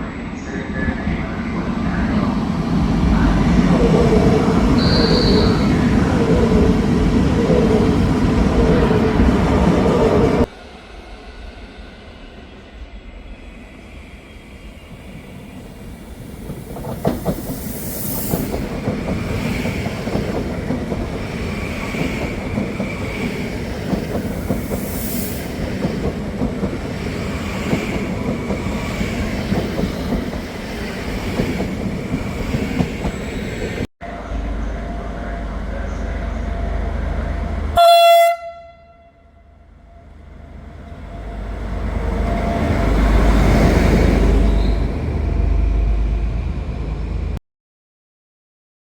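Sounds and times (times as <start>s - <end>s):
train rumbling on rails: 0.0s - 47.4s
faint high wheel squeal: 4.8s - 5.8s.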